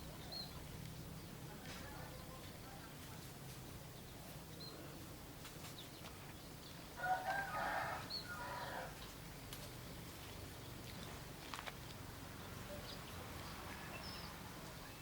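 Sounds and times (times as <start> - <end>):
rooster crowing: 7.0 - 9.0.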